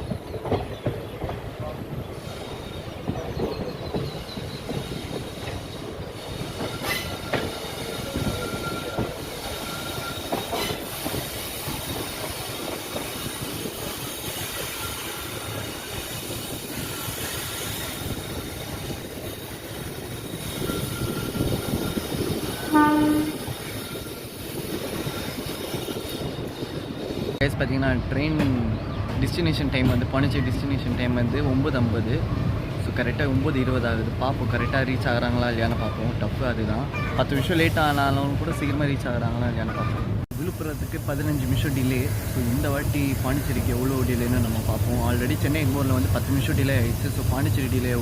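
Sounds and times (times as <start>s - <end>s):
train rumble and wheel clatter: 0.0s - 48.0s
train horn blast: 22.6s - 23.6s.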